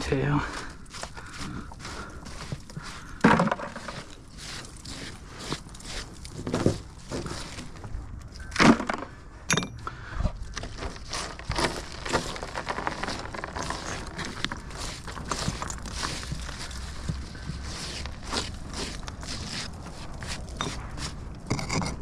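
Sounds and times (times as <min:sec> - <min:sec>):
brick scraping on brick: 0:00.6 - 0:07.8, 0:10.5 - 0:22.0
bricks knocking and clinking: 0:08.4 - 0:09.8, 0:18.8 - 0:22.0.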